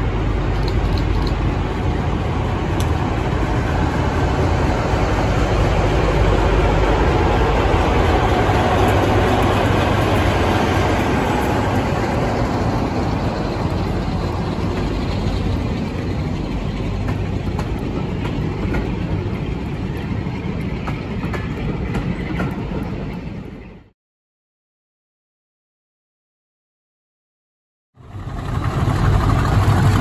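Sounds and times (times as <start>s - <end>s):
diesel locomotive engine: 0.0s - 24.0s, 28.0s - 30.0s
wheel clicks over rail joints: 0.5s - 1.5s, 13.0s - 23.5s.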